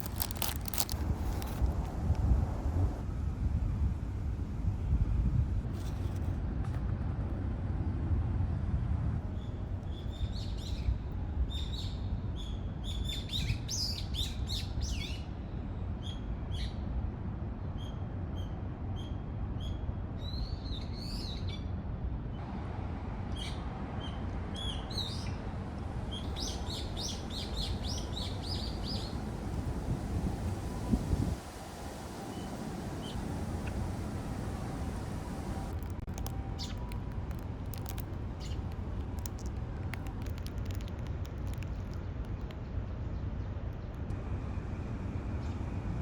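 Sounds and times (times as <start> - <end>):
steady low rumble: 0.0 - 5.7, 25.5 - 46.0
small birds chirping: 26.3 - 29.7, 35.6 - 44.1.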